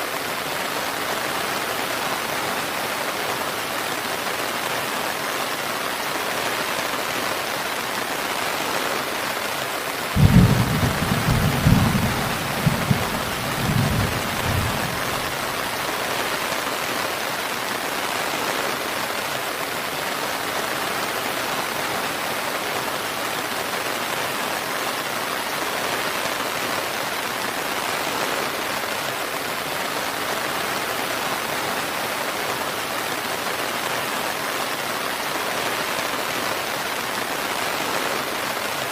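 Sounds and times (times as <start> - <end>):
rain falling: 0.0 - 38.9
thunder rumbling: 10.2 - 15.9.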